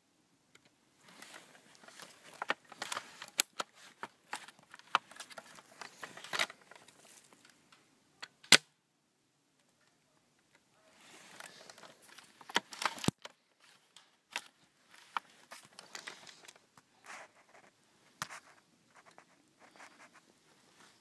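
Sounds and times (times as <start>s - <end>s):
crackling and snapping brush: 0.6s - 7.6s, 11.0s - 20.2s.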